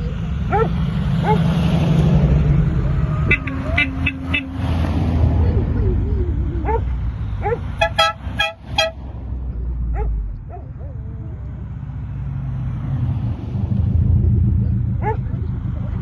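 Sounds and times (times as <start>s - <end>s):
engines rumbling: 0.0s - 16.0s
car horn toots: 3.2s - 4.7s, 7.8s - 9.0s.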